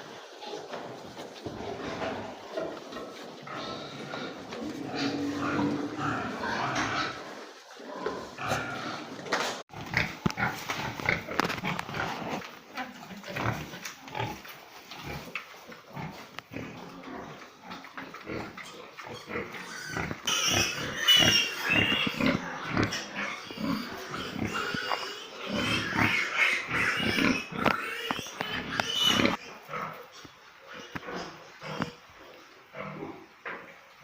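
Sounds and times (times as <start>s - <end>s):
pigs grunting: 1.5s - 12.5s, 13.1s - 30.1s
pigs squealing: 18.3s - 29.7s.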